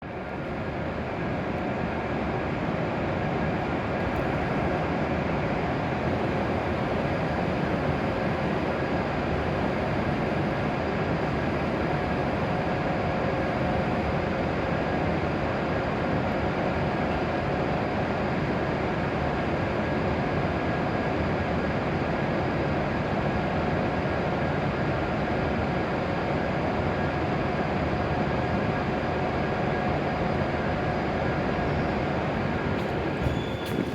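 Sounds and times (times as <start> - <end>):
train equipment humming: 0.1 - 19.1, 29.8 - 33.9.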